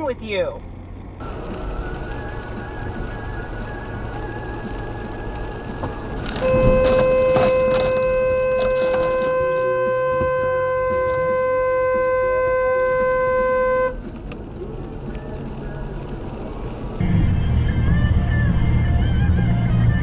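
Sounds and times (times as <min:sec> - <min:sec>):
road and engine noise: 0:00.0 - 0:20.0
car horn blast: 0:06.4 - 0:14.0.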